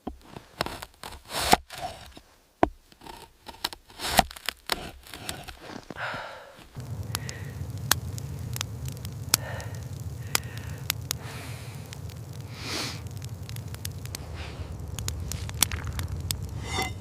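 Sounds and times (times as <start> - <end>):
fire crackling and popping: 3.9 - 17.0
low rumble of fire: 6.7 - 17.0.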